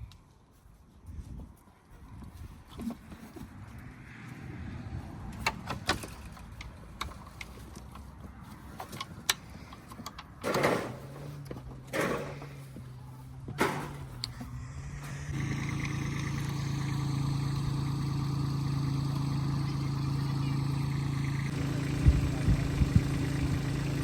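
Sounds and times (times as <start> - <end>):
vehicle engine starting and idling: 5.2 - 24.0
knocks and clatters: 5.3 - 14.6.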